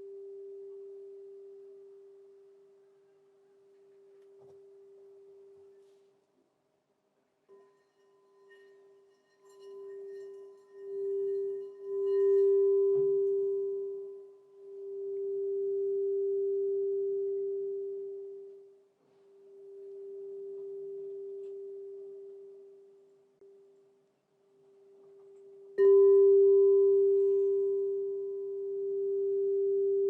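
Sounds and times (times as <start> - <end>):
crystal singing bowl ringing: 7.5 - 23.8, 25.2 - 30.0.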